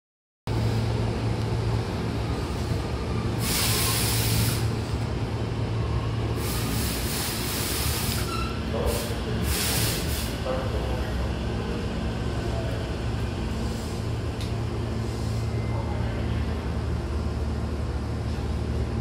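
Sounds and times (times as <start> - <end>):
electric train humming: 0.5 - 8.5
train moving on track: 0.5 - 19.0
hissing air bursts: 3.4 - 4.7, 6.4 - 8.3, 8.9 - 10.4.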